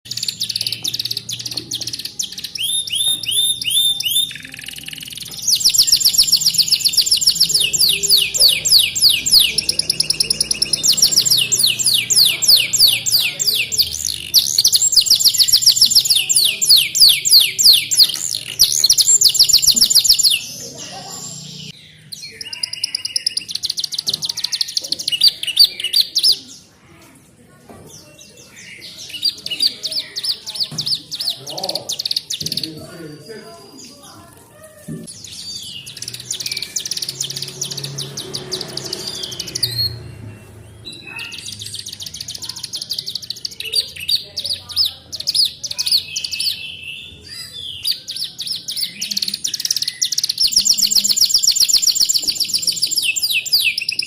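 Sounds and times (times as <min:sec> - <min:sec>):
canary singing: 0:00.0 - 0:26.8, 0:27.9 - 0:54.0.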